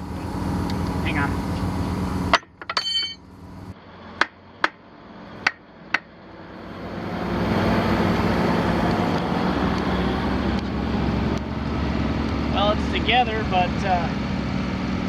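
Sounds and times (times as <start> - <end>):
vehicle engine running: 0.0 - 15.0
sharp metallic knocks: 2.3 - 3.2, 4.2 - 4.8, 5.4 - 6.1.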